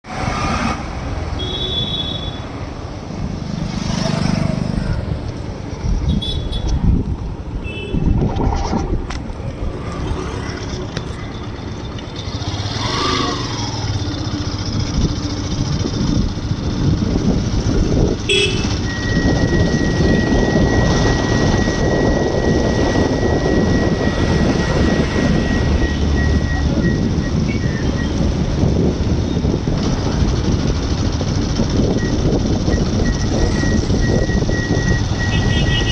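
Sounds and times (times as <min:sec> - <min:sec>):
road vehicle rumble: 0:00.0 - 0:35.9
wind buffeting microphone: 0:05.1 - 0:11.6, 0:13.8 - 0:35.9
high-pitched whine: 0:18.8 - 0:28.2.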